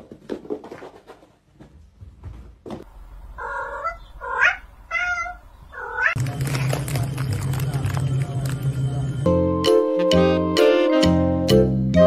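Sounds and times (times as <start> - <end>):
cat meowing: 3.4 - 6.2.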